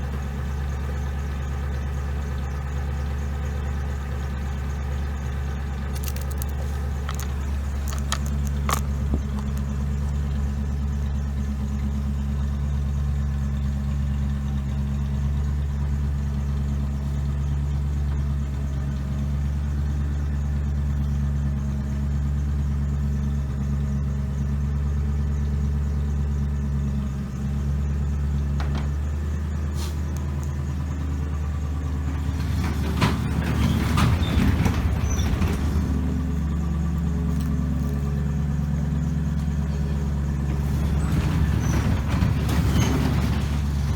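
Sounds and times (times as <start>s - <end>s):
car engine idling: 0.0s - 43.9s
rattling noise: 5.8s - 10.8s, 30.1s - 38.5s, 39.1s - 43.9s.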